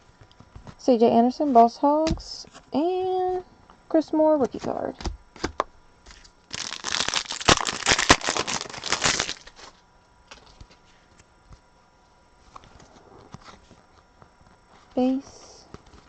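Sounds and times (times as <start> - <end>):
foil wrapper tearing and crinkling: 5.4 - 10.7.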